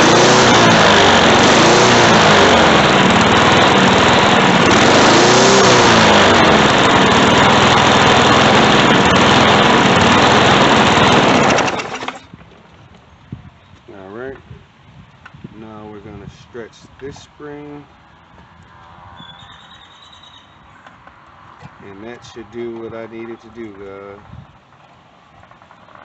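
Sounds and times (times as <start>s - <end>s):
lawn mower engine running: 0.0s - 13.6s.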